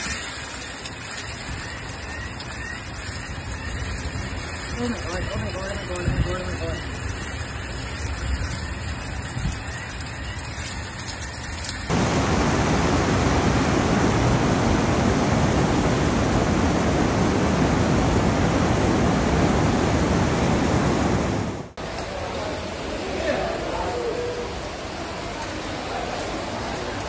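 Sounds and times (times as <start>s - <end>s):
torrential rain hissing: 3.0s - 22.2s.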